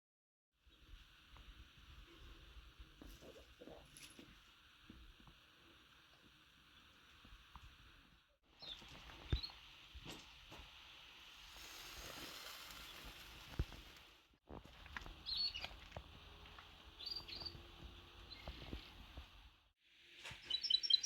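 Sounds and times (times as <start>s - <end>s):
steady hiss: 0.6s - 14.3s
short bird chirps: 20.3s - 21.0s.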